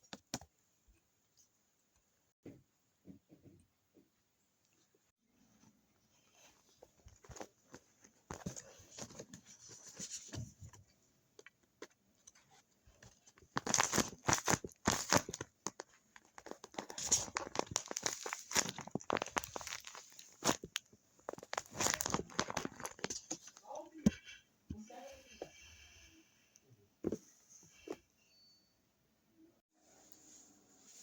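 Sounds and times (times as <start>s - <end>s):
paper crinkling and tearing: 13.1s - 23.6s.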